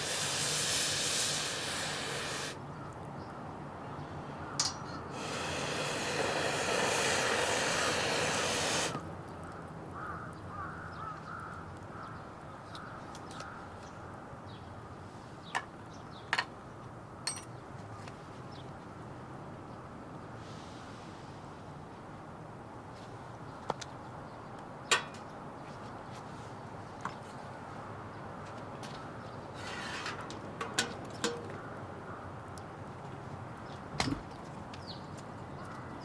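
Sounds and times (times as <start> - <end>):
fire hissing: 0.0 - 2.6, 5.1 - 9.0.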